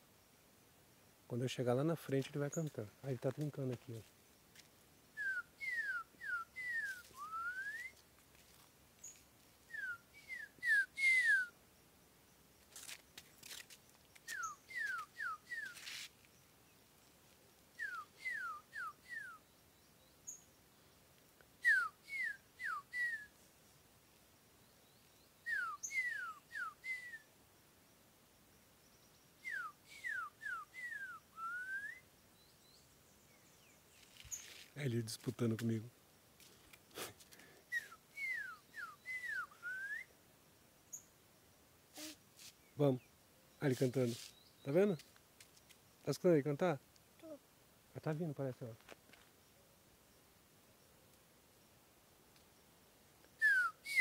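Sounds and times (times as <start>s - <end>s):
bird whistling song: 5.2s - 8.0s, 9.0s - 11.6s, 14.2s - 16.1s, 17.8s - 19.6s, 21.6s - 23.4s, 24.8s - 27.3s, 29.0s - 34.5s, 37.7s - 40.2s, 53.3s - 54.0s.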